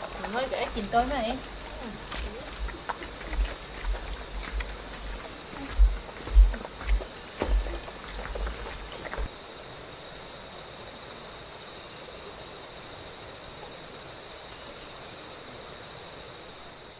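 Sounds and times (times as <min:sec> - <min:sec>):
insects trilling: 0:00.0 - 0:16.9
knocks and low thumps: 0:00.5 - 0:09.3.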